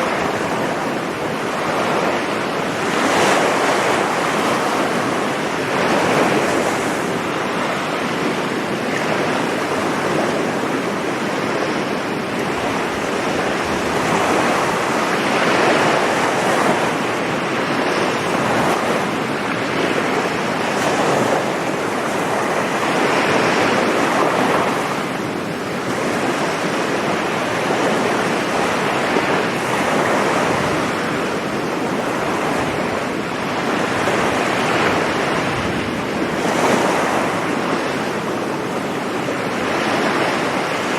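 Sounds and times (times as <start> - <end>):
sea waves breaking on beach: 0.0 - 40.9
wind noise on microphone: 0.0 - 40.9.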